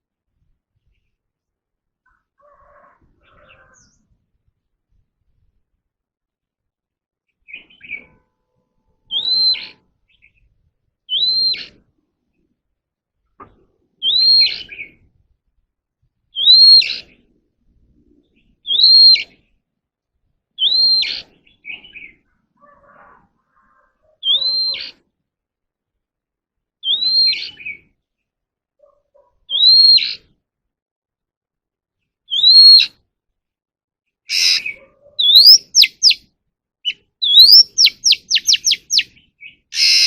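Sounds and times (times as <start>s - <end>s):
bird whistling song: 9.1s - 10.4s, 11.1s - 11.8s, 14.0s - 15.0s, 16.3s - 17.2s, 18.6s - 19.4s, 20.6s - 22.2s, 24.2s - 25.0s, 26.8s - 27.8s, 29.5s - 30.2s, 32.3s - 33.0s, 34.3s - 36.2s, 36.8s - 40.0s
short bird chirps: 34.3s - 36.2s, 36.8s - 40.0s.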